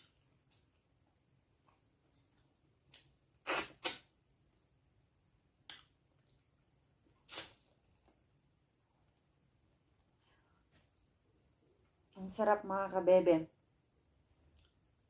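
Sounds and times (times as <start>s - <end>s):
wet mouth smacks: 2.9s - 4.7s, 5.7s - 6.4s, 7.0s - 8.1s.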